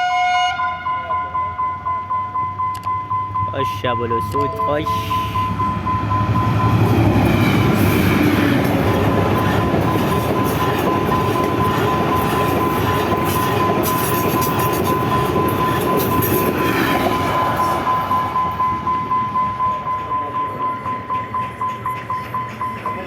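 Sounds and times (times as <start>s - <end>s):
steady high tone: 0.0s - 23.0s
train wheels rumbling on track: 1.0s - 23.0s
wheels clattering over rail joints: 6.2s - 23.0s.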